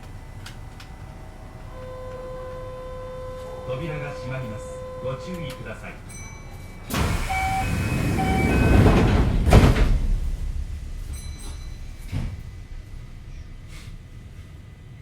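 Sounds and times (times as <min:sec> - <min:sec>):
train doors closing with thud: 0:00.0 - 0:15.0
short beeps: 0:01.8 - 0:09.1
rush of air: 0:06.9 - 0:15.0.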